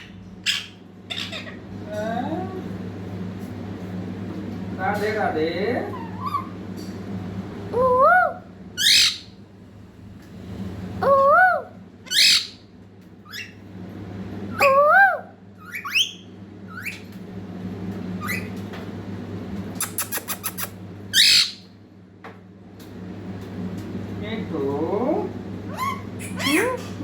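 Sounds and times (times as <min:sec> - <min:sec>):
parrot whistled calls: 0:00.0 - 0:01.6, 0:08.0 - 0:09.3, 0:11.3 - 0:12.6, 0:14.5 - 0:17.1, 0:18.2 - 0:18.5, 0:19.8 - 0:21.7, 0:25.7 - 0:26.8
parrot squawking: 0:00.0 - 0:01.7, 0:05.8 - 0:06.6, 0:07.7 - 0:09.4, 0:11.0 - 0:12.6, 0:13.3 - 0:13.6, 0:14.5 - 0:17.1, 0:18.2 - 0:18.5, 0:19.8 - 0:21.7, 0:25.7 - 0:27.0.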